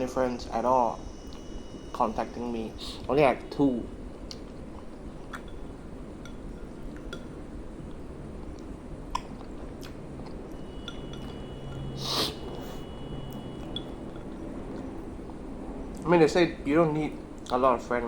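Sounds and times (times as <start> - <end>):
rush of noise: 9.9 - 17.4.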